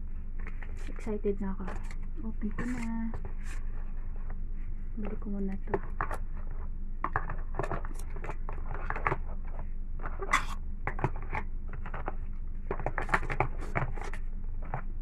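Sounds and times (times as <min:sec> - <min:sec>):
steady low hum: 0:00.0 - 0:15.0
packaging clicks and rustles: 0:05.0 - 0:14.9.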